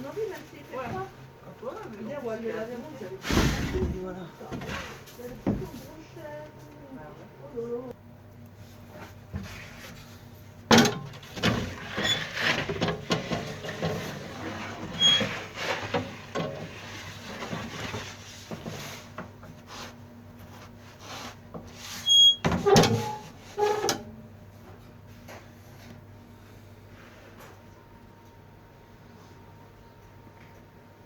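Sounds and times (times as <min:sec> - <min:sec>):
handling knocks and clatters: 0:10.7 - 0:19.5.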